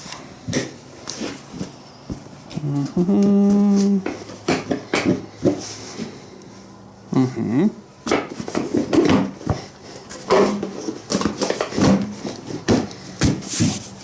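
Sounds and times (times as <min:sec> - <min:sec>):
motorcycle parts clattering: 0:08.0 - 0:13.8.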